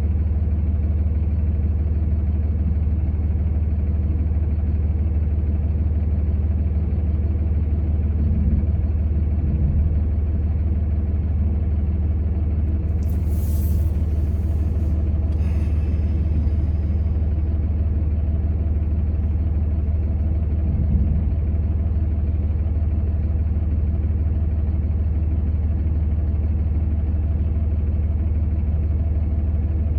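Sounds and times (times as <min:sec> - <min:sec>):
vehicle engine drone: 0:00.0 - 0:29.9
short high hisses: 0:12.9 - 0:17.4.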